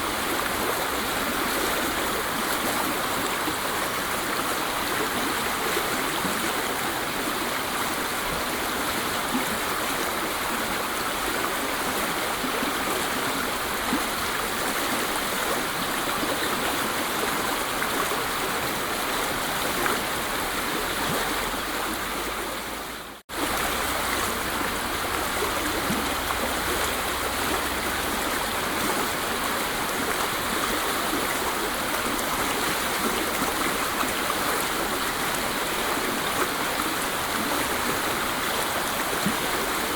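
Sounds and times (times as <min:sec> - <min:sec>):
waterfall rushing: 0:23.3 - 0:35.8.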